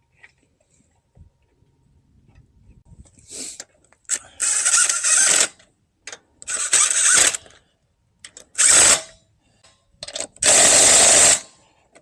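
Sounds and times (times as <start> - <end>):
power tool running lug nuts: 4.4 - 5.5, 6.4 - 7.5, 8.6 - 9.1, 10.4 - 11.5.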